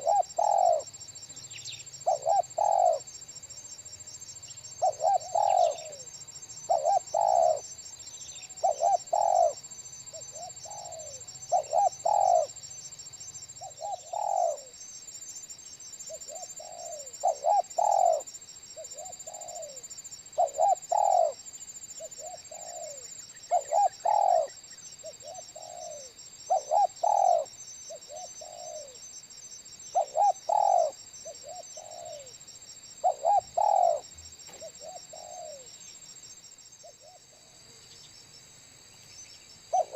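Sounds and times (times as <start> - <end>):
dove cooing: 0.0 - 0.9, 2.0 - 3.1, 4.8 - 7.7, 8.5 - 12.6, 13.6 - 14.8, 16.1 - 21.4, 22.0 - 29.0, 30.0 - 32.3, 33.0 - 35.7
high insect drone: 0.0 - 39.9.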